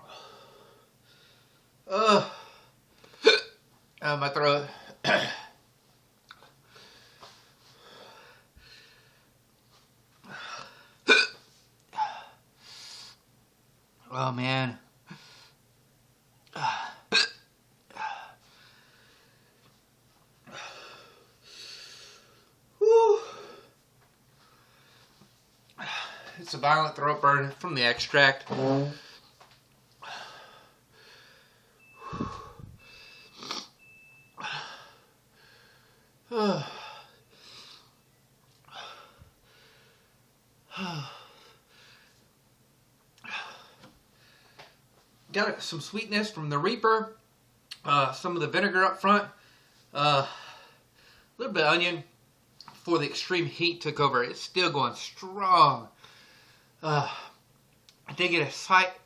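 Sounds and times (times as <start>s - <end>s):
man groaning: 1.9s - 2.4s, 22.8s - 23.5s, 36.3s - 36.9s, 56.8s - 57.3s
man hiccuping: 1.9s - 2.4s, 3.2s - 3.6s, 5.0s - 5.6s, 11.0s - 11.4s, 16.5s - 18.3s
man breathing hard: 6.6s - 9.3s, 17.9s - 19.6s, 20.5s - 22.6s, 30.0s - 33.5s, 34.4s - 38.0s, 38.7s - 42.2s, 43.2s - 44.8s, 56.0s - 57.4s.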